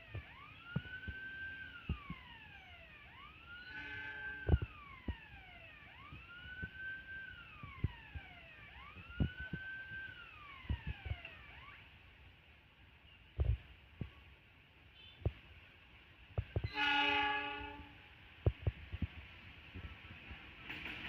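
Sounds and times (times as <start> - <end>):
electronic wailing siren: 0.0 - 11.9
short horn-like tone: 3.6 - 4.6, 16.7 - 18.0.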